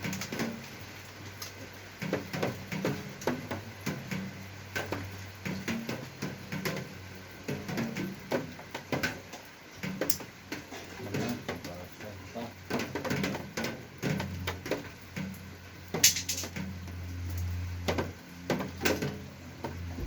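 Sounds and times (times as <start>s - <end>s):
small parts and tools clicking: 16.0s - 16.6s.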